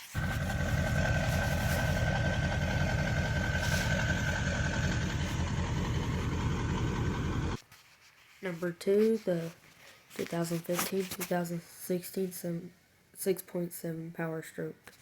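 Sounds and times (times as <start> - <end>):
high-pitched whine: 0.0 - 7.6
diesel engine idling: 0.2 - 7.6.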